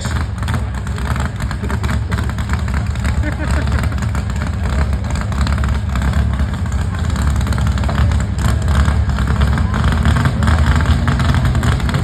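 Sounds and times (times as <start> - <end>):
heavy engine rattling: 0.0 - 12.0.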